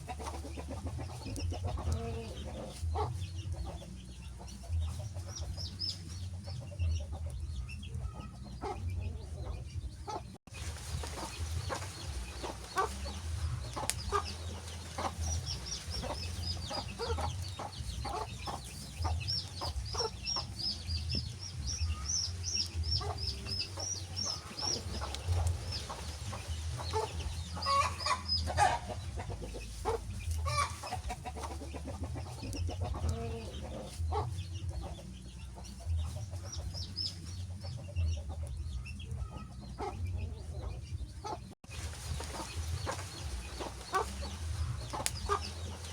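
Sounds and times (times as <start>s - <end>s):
wood fire crackling: 10.5s - 18.0s, 19.4s - 27.4s.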